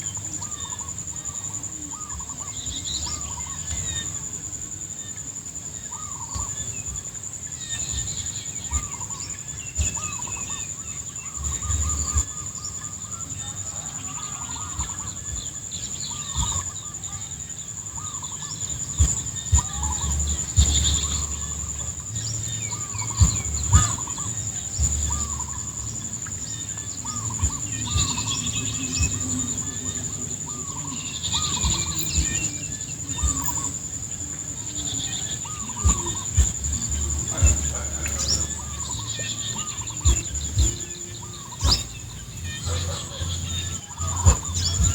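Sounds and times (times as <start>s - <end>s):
animal calls overlapping: 0.0s - 44.9s
high-pitched insect drone: 0.0s - 44.9s
wind rumbling on microphone: 14.5s - 44.9s.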